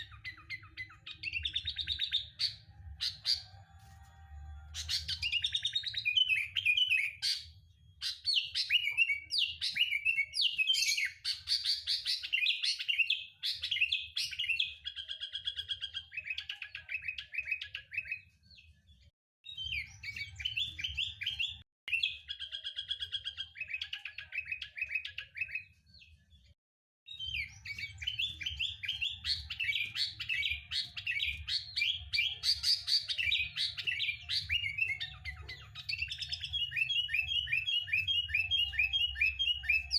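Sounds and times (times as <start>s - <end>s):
bird singing chattering chirps: 4.7s - 18.3s, 27.1s - 39.9s.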